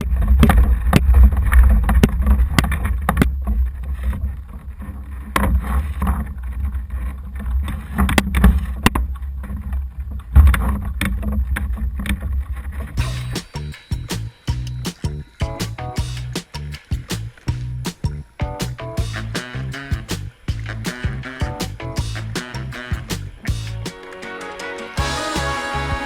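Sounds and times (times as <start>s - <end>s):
heavy low rumble: 13.0s - 23.8s.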